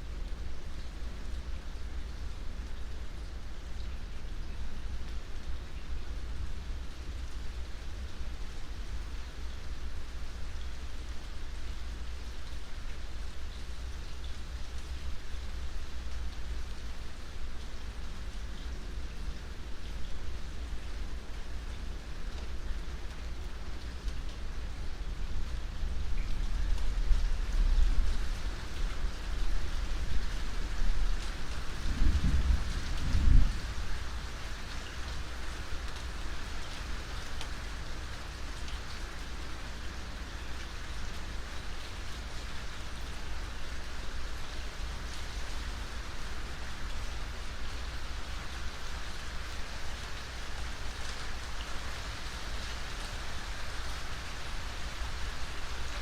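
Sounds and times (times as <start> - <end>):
steady rain falling: 0.0 - 56.0
low roll of thunder: 29.5 - 34.4.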